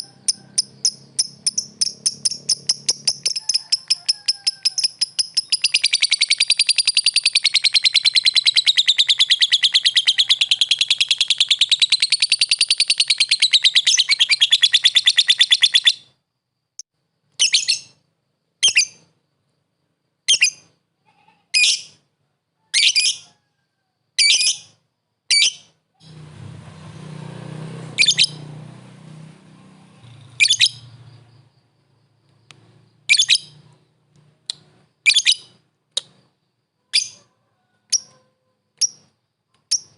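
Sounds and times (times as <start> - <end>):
lovebird chattering trill: 0.0 - 16.1, 17.4 - 18.0, 28.0 - 28.4, 30.0 - 31.0, 33.1 - 33.8, 34.5 - 36.2, 39.7 - 39.9
bird chirps: 0.0 - 16.2, 17.3 - 18.0, 18.6 - 19.2, 27.9 - 28.5, 29.7 - 37.3, 37.9 - 39.9.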